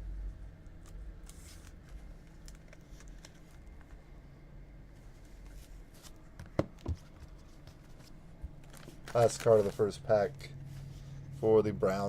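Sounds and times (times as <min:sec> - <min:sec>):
low room hum: 0:00.0 - 0:12.0
card rustle: 0:00.8 - 0:04.0, 0:05.0 - 0:11.1.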